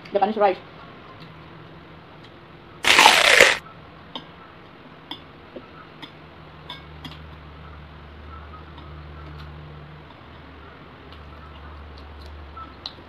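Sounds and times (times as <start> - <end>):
loud noisy eating burst: 2.8 - 3.6.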